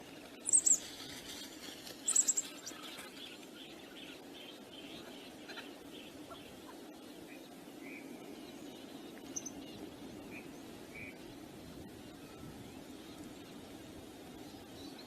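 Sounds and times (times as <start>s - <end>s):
background bird calls: 0.0s - 15.0s
small bird chirping: 0.3s - 11.4s.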